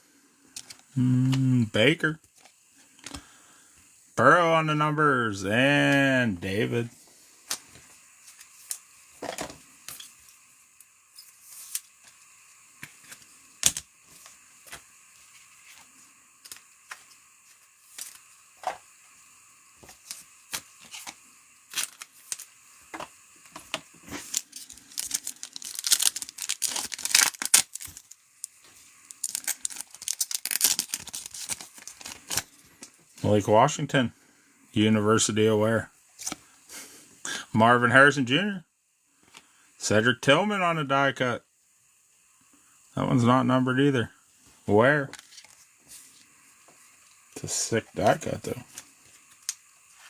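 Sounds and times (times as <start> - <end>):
foil wrapper tearing and crinkling: 20.0 - 22.5, 24.0 - 28.5, 29.1 - 32.6.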